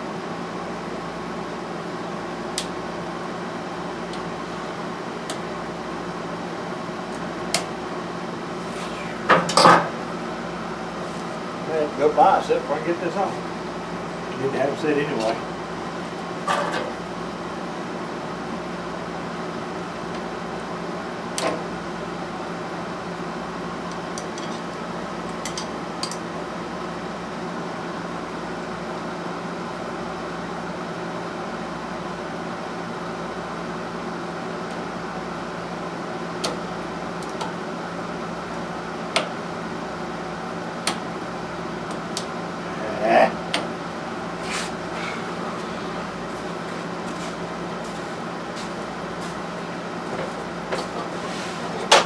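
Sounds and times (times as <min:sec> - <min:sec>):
machine hum: 0:41.6 - 0:52.0.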